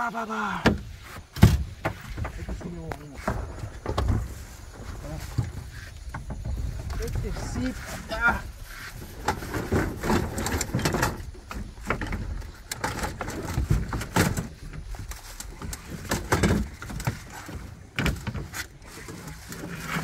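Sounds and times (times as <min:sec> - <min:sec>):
knocks and bumps on boat: 0:00.6 - 0:08.4, 0:09.0 - 0:20.0
steady low rumble: 0:01.6 - 0:13.9.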